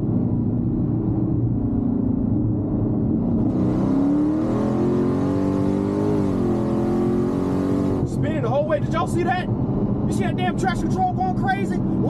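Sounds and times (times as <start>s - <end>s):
car engine revving hard: 3.3s - 8.1s.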